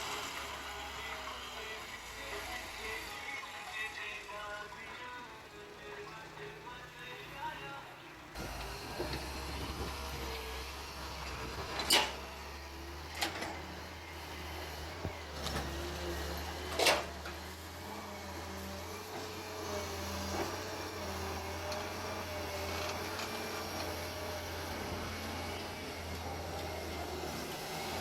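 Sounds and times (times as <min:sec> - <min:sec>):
diesel digger engine running: 0:00.0 - 0:28.0
hydraulic whine: 0:08.4 - 0:28.0.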